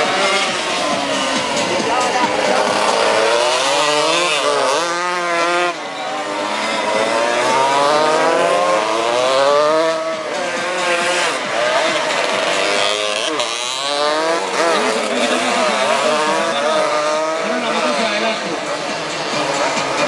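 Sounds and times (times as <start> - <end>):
racing motorcycles revving: 0.0 - 20.0.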